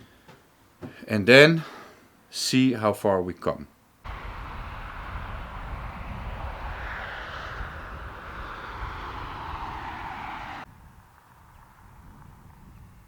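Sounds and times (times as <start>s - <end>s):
vehicle engine rumble with rushing: 4.1s - 12.8s.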